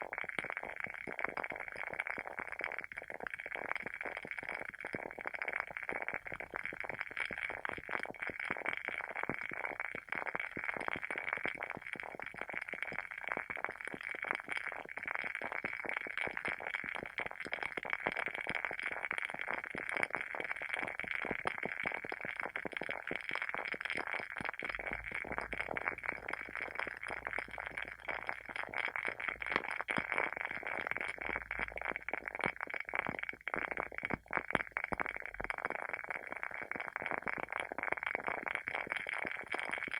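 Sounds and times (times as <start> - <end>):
candle wick crackling: 24.8 - 36.0.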